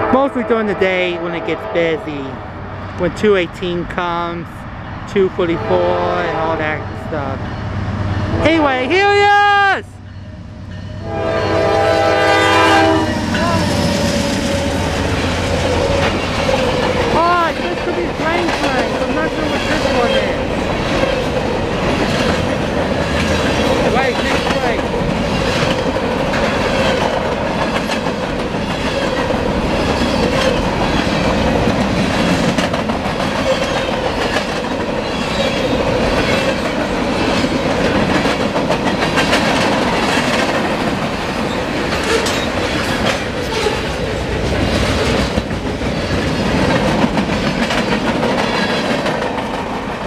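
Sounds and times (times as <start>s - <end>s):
freight train wheels rumbling: 0.0s - 50.0s
clickety-clack over rail joints: 13.3s - 50.0s.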